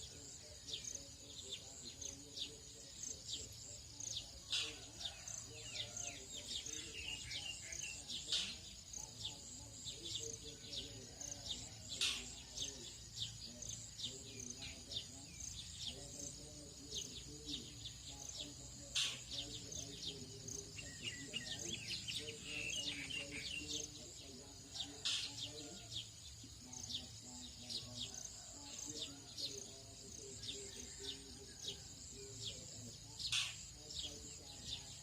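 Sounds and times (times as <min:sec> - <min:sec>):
birds chirping and calling: 0:00.0 - 0:35.0
faint low chanting of monks: 0:00.0 - 0:35.0.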